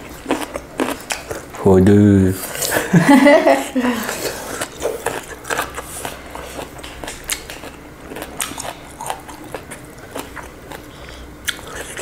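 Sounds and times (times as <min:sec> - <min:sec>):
wet chewing clicks and smacks: 0:00.1 - 0:01.6, 0:04.4 - 0:12.0.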